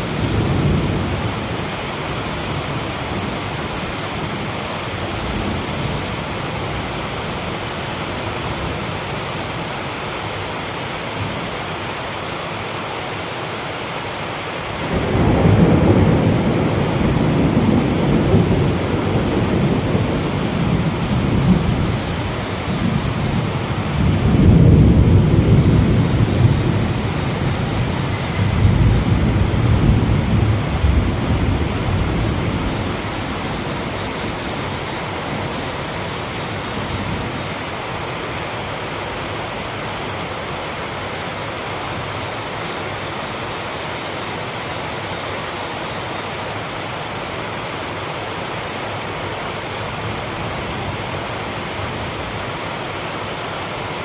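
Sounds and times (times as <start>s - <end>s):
rolling thunder rumble: 0.0s - 7.2s, 14.8s - 38.0s
heavy rain falling: 0.0s - 54.0s.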